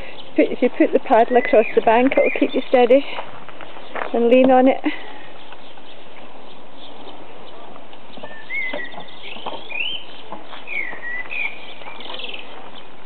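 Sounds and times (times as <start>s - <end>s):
bird whistling: 8.1s - 12.5s.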